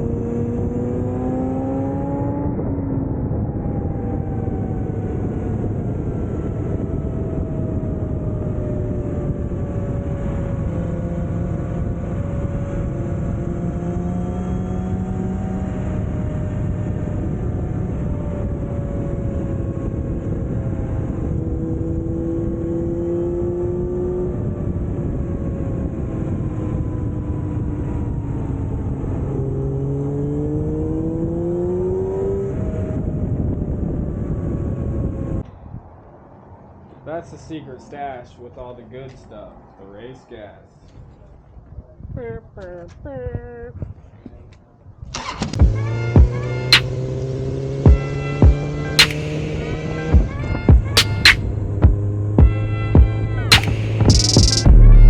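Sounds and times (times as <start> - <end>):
motorcycle engine running: 45.6 - 46.9
steady rushing noise: 49.0 - 55.0.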